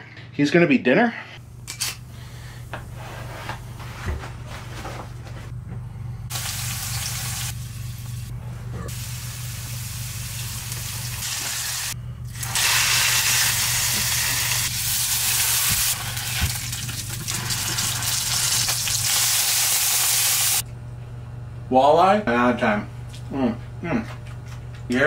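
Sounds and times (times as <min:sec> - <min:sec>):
low hum: 0:01.4 - 0:18.1
food sizzling in hot oil: 0:06.3 - 0:08.2, 0:08.9 - 0:20.6.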